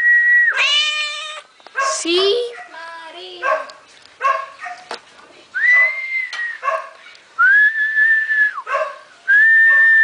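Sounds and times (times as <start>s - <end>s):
person whistling long notes: 0.0s - 0.5s, 5.6s - 6.6s, 7.4s - 8.6s, 9.3s - 10.0s
cat meowing: 0.5s - 1.5s.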